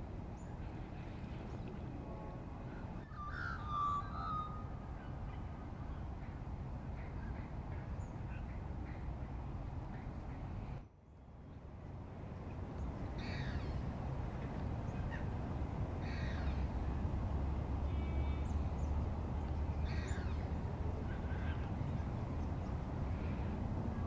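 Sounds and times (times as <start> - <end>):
harsh bird calls: 3.0 - 5.5.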